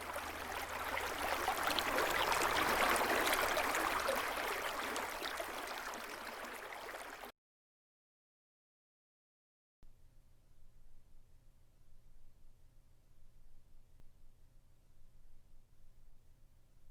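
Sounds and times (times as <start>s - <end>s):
stream water rushing: 0.0s - 7.3s.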